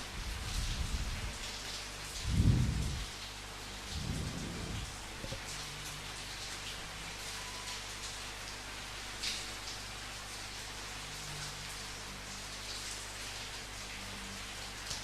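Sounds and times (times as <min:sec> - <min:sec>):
steady rain: 0:00.0 - 0:15.0
thunder rumbling: 0:02.2 - 0:03.1, 0:03.8 - 0:05.4.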